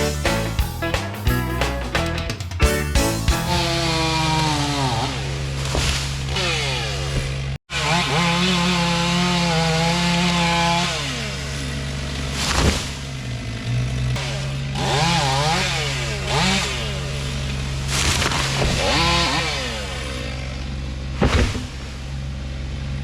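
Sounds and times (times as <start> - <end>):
chainsaw revving while cutting: 3.1 - 21.8.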